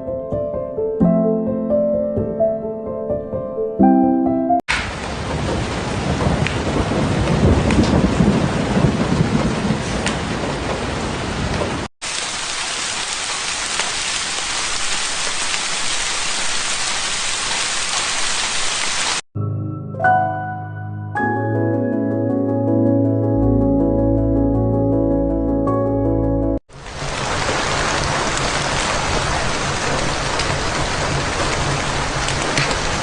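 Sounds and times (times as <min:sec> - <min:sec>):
soft piano music: 0:00.0 - 0:04.6, 0:19.4 - 0:26.6
rumbling thunder: 0:04.7 - 0:11.9, 0:27.0 - 0:33.0
heavy rain: 0:04.7 - 0:19.2, 0:26.7 - 0:33.0.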